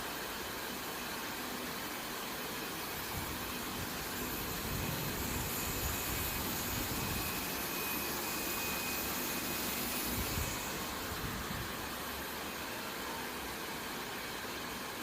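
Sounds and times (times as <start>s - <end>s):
faint high whines: 0.9s - 15.0s
factory machinery rushing: 3.0s - 11.8s.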